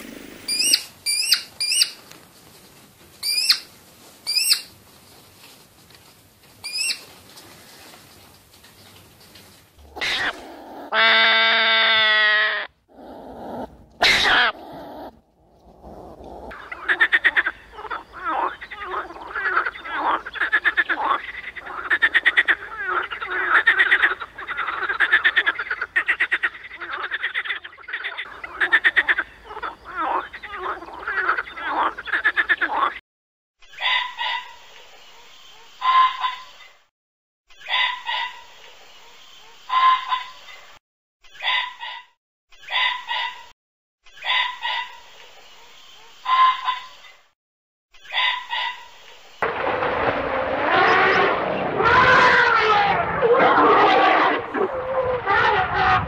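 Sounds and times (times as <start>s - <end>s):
animal giving short calls: 9.8s - 17.0s
frogs croaking: 12.9s - 33.0s.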